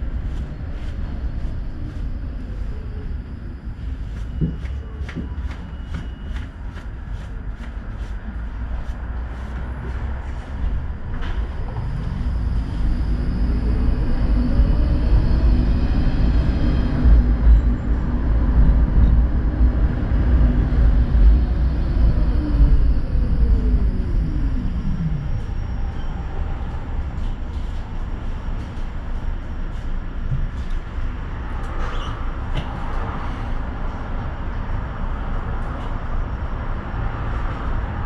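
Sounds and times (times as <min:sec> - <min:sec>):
tram motor whine: 0:00.0 - 0:38.0
low rumble: 0:08.3 - 0:31.6.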